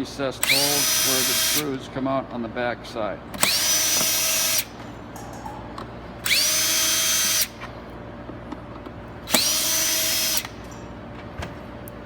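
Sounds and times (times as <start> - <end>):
power drill whining: 0.4 - 1.7, 3.4 - 4.8, 6.2 - 7.7, 9.3 - 10.7.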